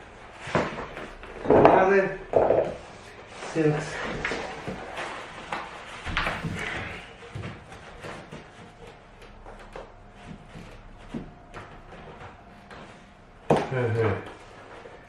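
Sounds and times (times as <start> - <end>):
floor planks knocking and clattering: 0.4 - 3.1.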